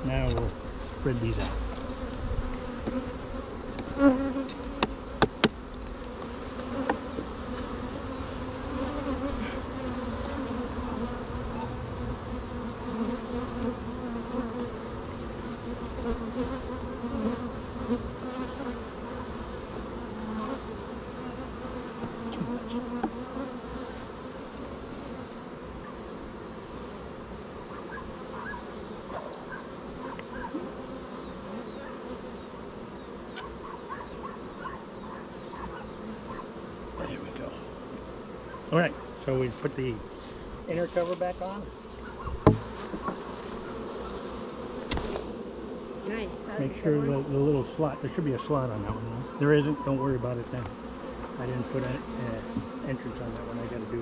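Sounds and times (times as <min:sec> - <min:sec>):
honeybees buzzing: 0:00.0 - 0:54.0
sharp knocks: 0:04.8 - 0:05.6, 0:42.4 - 0:43.2.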